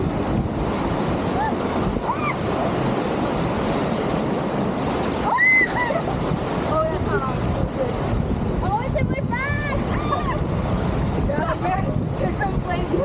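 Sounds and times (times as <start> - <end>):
rapids water rushing: 0.0 - 13.0.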